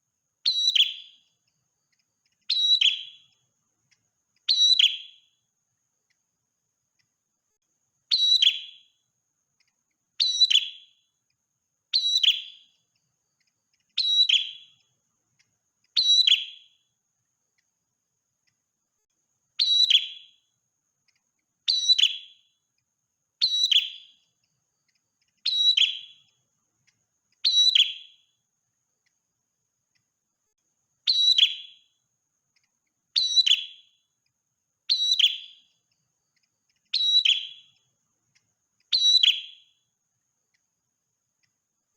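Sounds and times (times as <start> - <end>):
songbird short sharp calls: 0.4 - 3.4, 4.4 - 5.4, 8.1 - 9.0, 10.2 - 11.1, 11.9 - 14.9, 15.9 - 16.9, 19.6 - 20.5, 21.6 - 22.6, 23.4 - 26.4, 27.4 - 28.4, 31.0 - 32.0, 33.1 - 34.1, 34.9 - 35.8, 36.4 - 37.9, 38.9 - 39.8.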